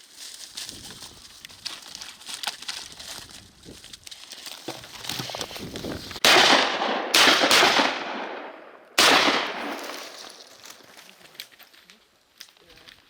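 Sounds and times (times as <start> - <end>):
shotgun shots: 6.2 - 10.6.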